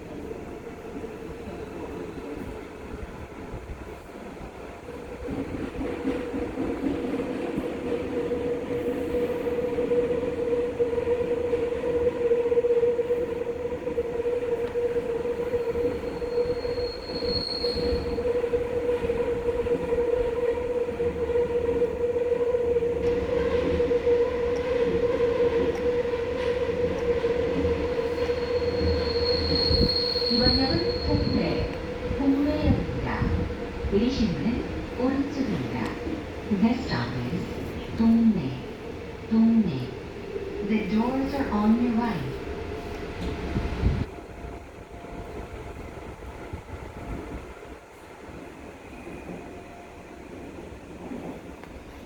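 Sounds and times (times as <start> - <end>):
train wheels rumbling on track: 0.0 - 52.0
high-pitched wheel squeal: 15.8 - 18.5, 28.0 - 31.8.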